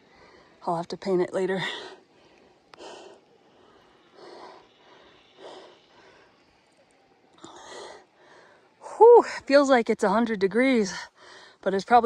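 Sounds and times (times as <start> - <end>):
person breathing hard: 1.8 - 6.4.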